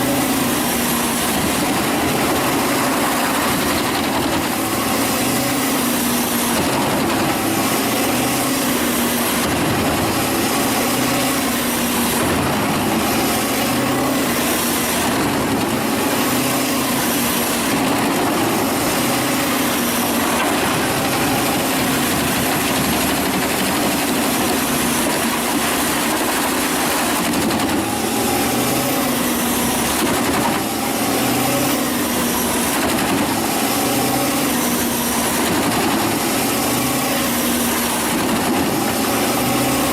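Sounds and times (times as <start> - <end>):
wood chipper running: 0.0 - 39.9.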